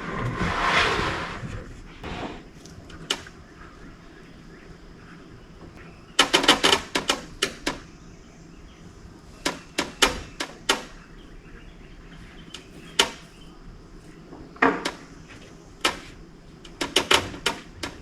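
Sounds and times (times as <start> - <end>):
low steady background: 0.0 - 18.0
sharp knocks and clicks: 2.6 - 3.4, 5.6 - 7.9, 9.4 - 11.0, 12.5 - 13.3, 14.3 - 18.0.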